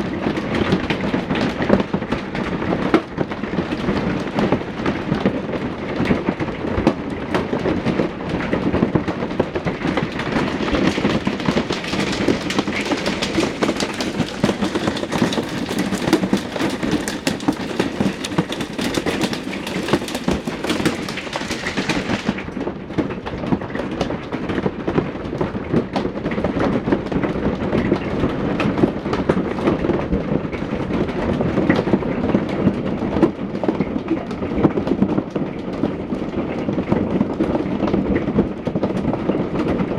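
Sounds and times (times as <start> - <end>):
hail pelting hard surfaces: 0.0 - 39.9.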